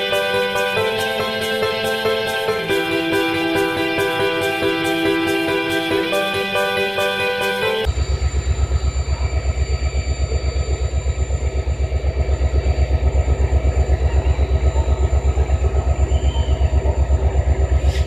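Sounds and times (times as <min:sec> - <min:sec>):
faint high whine: 0:07.8 - 0:17.8
diesel engine idling: 0:07.9 - 0:18.0.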